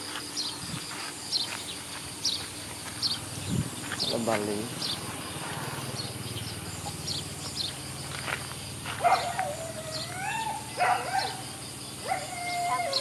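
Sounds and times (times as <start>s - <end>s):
dog whining: 12.1s - 13.0s.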